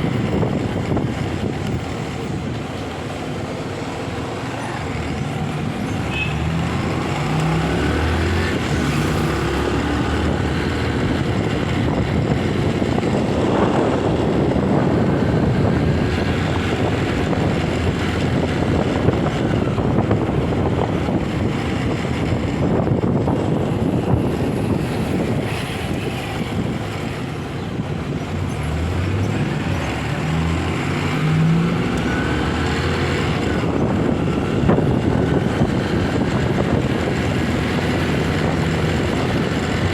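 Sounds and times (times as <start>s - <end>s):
wind noise on microphone: 0.0s - 39.9s
motorcycle engine accelerating: 5.0s - 26.8s.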